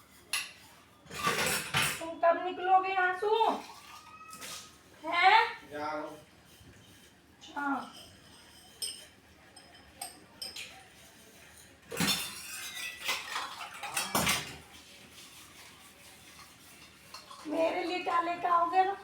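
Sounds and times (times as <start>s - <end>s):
dishes and utensils clinking: 0.0s - 2.2s, 6.1s - 19.0s.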